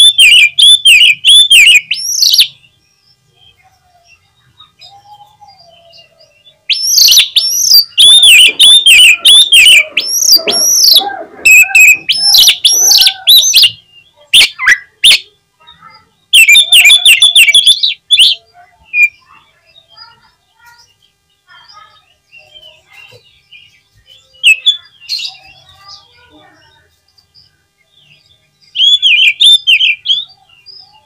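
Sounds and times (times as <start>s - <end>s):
bird singing whistled notes: 0.0s - 3.1s, 4.1s - 15.3s, 16.3s - 19.8s
sharp bird calls: 0.0s - 31.0s.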